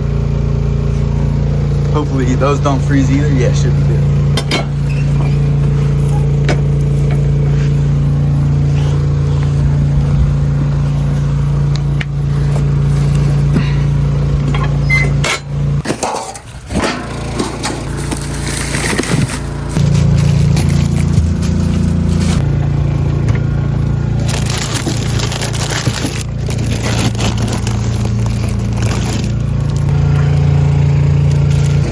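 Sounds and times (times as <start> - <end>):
engine humming: 0.0 - 31.9.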